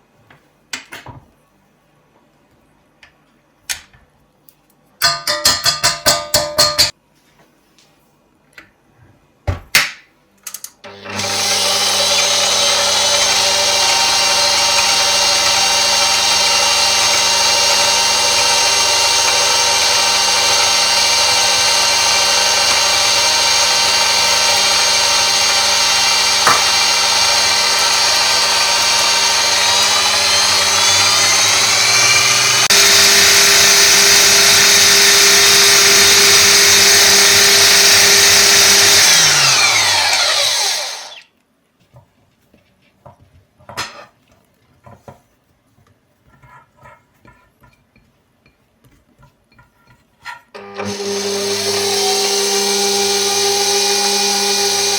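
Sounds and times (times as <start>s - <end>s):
electric mixer motor running: 10.9s - 41.2s, 50.6s - 54.9s
mixer clicks: 10.9s - 41.2s.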